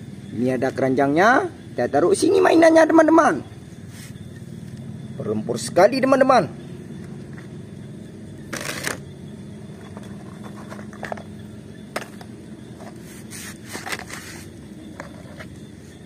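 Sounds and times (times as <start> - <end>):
steady low hum: 0.0 - 16.0
plastic toys scraping on wood: 12.8 - 15.6.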